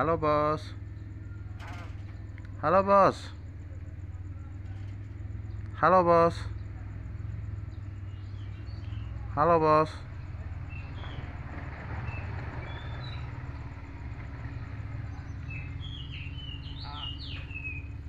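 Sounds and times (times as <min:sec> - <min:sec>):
steady low hum: 0:00.0 - 0:18.0
bird chirps and whistles: 0:15.5 - 0:17.9.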